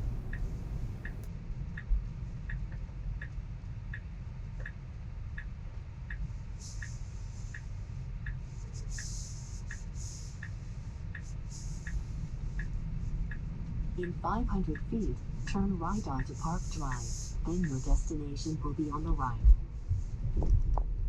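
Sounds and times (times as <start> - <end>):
low road rumble: 0.0 - 1.3, 11.4 - 21.0
turn signal ticking: 0.0 - 1.3, 9.0 - 19.2.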